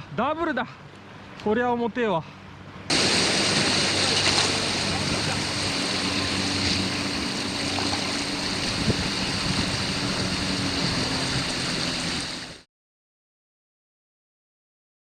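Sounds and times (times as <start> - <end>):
surf on rocky shore: 2.9 - 12.6.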